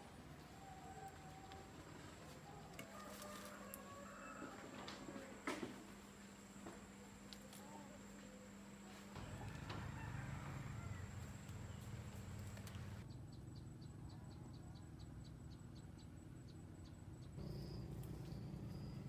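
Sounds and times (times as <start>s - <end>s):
low outdoor rumble: 4.8s - 13.1s
insects chirping: 16.2s - 19.0s.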